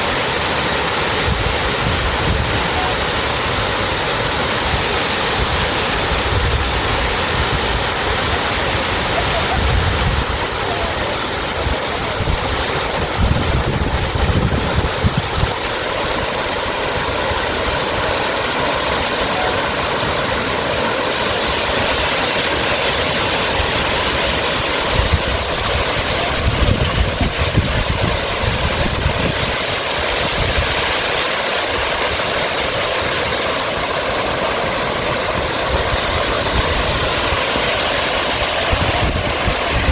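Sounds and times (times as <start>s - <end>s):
running water rushing: 0.0s - 39.9s
wind rumbling on microphone: 4.6s - 17.7s, 24.0s - 30.9s, 35.4s - 39.9s.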